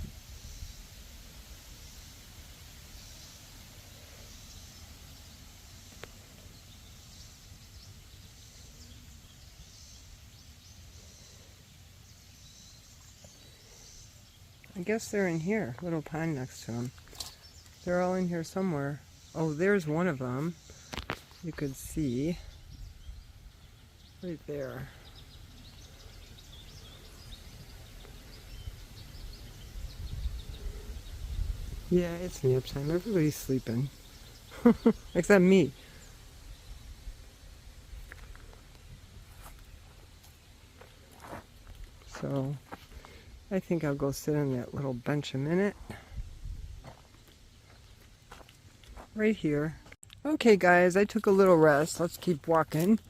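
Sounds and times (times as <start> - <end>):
insects trilling: 0.0 - 43.6
low rumble of wind: 0.0 - 53.0
small birds chirping: 0.0 - 53.0.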